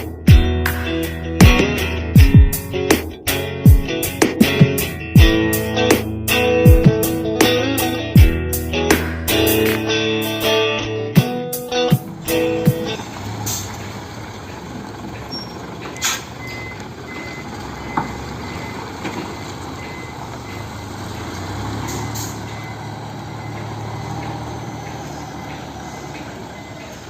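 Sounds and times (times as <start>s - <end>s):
diesel truck engine running: 0.0s - 27.0s
high-pitched warning beep: 15.3s - 18.8s, 19.8s - 20.7s, 21.9s - 23.7s.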